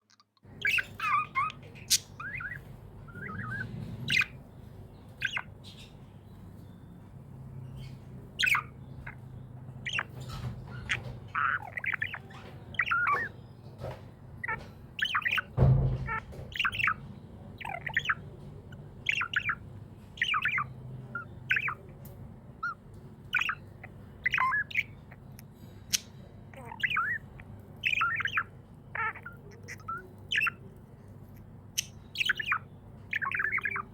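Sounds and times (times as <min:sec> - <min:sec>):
budgie chirping and squawking: 0:00.0 - 0:33.9
low thump: 0:15.6 - 0:16.4.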